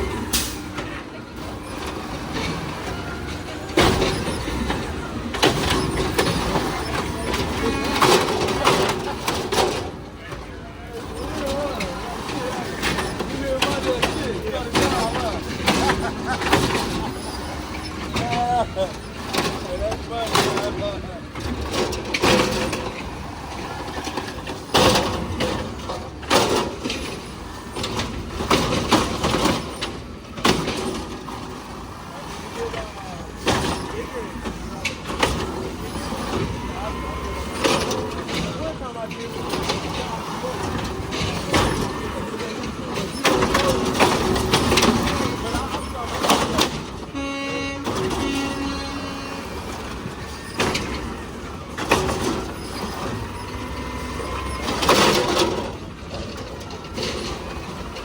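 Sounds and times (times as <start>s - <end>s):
truck engine revving: 0.0s - 58.0s.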